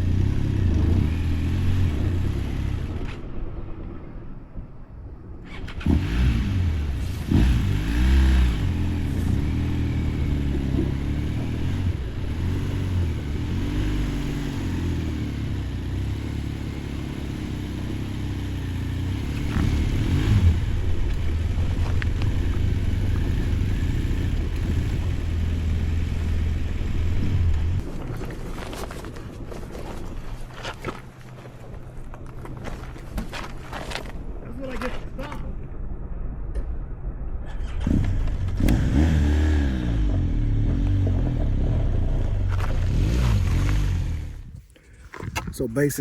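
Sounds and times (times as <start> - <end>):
motorcycle engine revving: 0.0 - 3.3, 5.4 - 28.0, 37.5 - 44.7.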